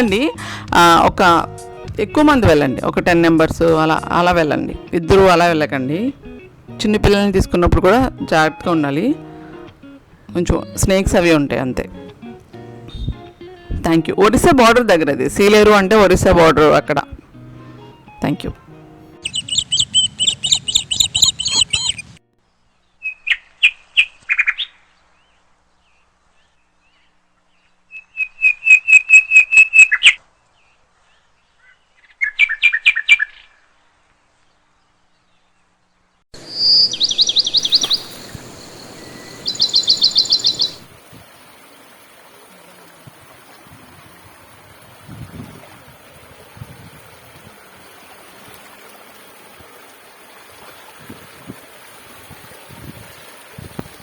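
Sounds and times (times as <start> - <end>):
stream flowing: 1.4 - 19.1, 37.4 - 54.0
bird trills: 19.2 - 22.2, 23.0 - 24.8, 27.9 - 30.2, 36.4 - 40.9.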